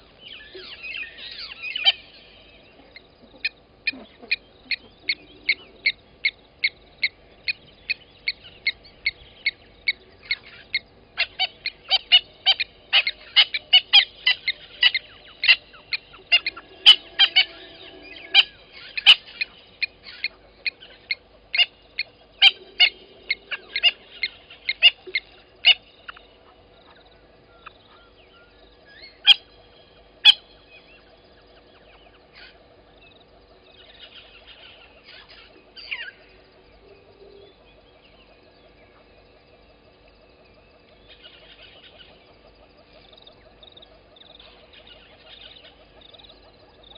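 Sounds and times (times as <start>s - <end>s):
high-pitched animal calls: 2.7s - 26.2s.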